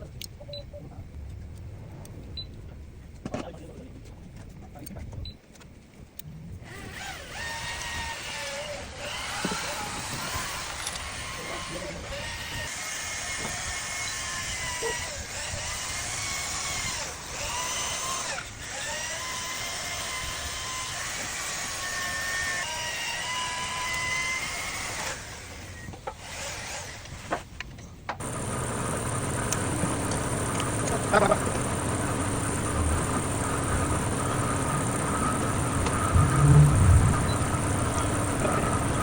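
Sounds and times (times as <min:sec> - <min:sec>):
whining motor: 0:06.6 - 0:27.5, 0:28.2 - 0:39.0
engine running: 0:28.2 - 0:39.0
clicks: 0:29.3 - 0:31.8
low thumps: 0:34.8 - 0:38.6.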